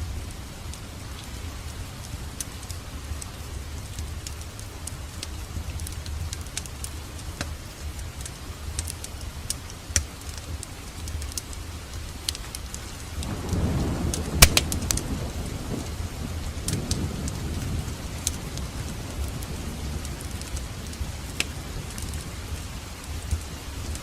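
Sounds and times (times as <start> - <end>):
wood fire crackling: 0.0 - 24.0
sharp pops of fire: 14.1 - 15.1.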